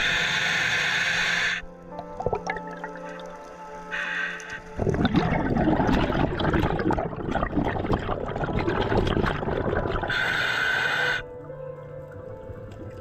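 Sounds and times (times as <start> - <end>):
breath hissing through regulator: 0.0 - 1.7, 3.8 - 4.8, 10.0 - 11.3
regulator exhaust bubbles gurgling: 4.8 - 10.1.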